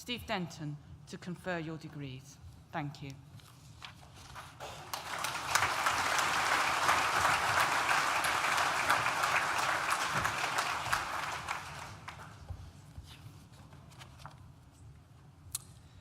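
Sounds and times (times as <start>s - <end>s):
audience applauding: 4.6s - 12.6s.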